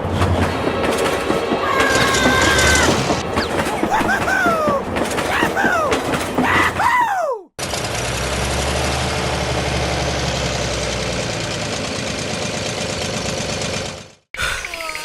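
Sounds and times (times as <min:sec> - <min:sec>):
engine idling: 0:10.6 - 0:14.2.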